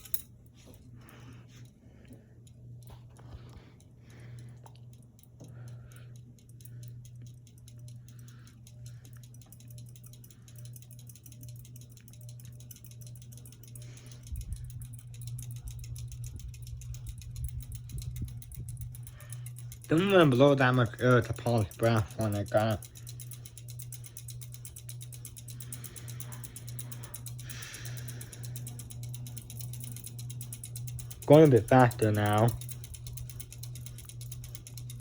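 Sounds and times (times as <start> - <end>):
ceiling fan motor hum: 0.0 - 35.0
faint rapid ticking: 1.0 - 35.0
rumble of moving air: 14.2 - 19.9.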